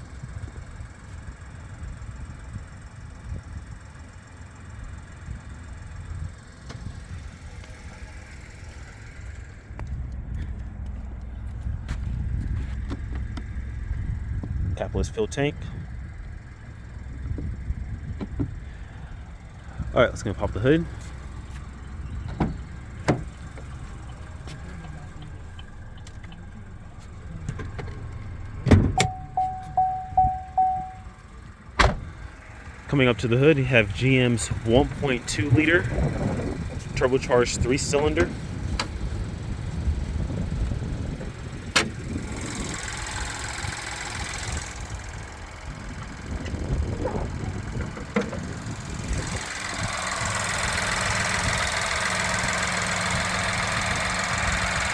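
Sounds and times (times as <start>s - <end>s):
car engine idling: 0.0s - 54.9s
car door opening: 21.0s - 31.1s, 31.7s - 32.2s
car warning chime: 28.9s - 31.4s.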